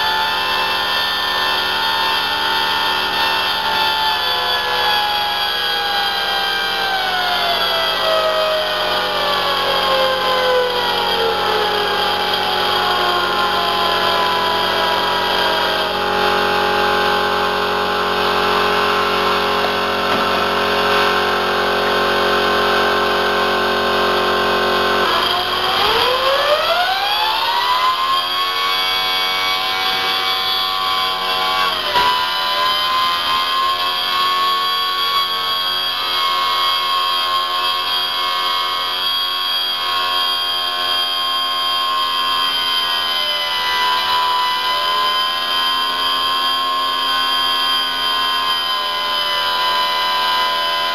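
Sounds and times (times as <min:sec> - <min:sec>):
turbine engine whine: 0:00.0 - 0:34.0
air compressor running: 0:02.9 - 0:27.1.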